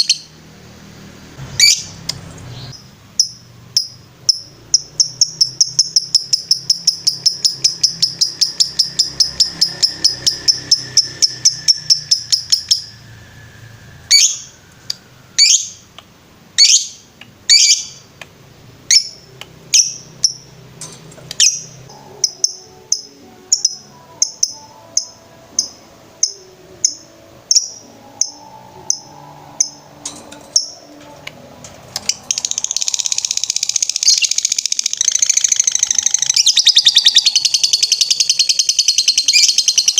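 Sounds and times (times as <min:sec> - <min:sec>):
lovebird chirping: 0:01.5 - 0:15.9, 0:16.6 - 0:18.1, 0:18.9 - 0:20.6, 0:21.3 - 0:31.2, 0:32.0 - 0:39.9
lovebird trilling: 0:02.7 - 0:13.0, 0:14.1 - 0:14.6, 0:32.0 - 0:39.9.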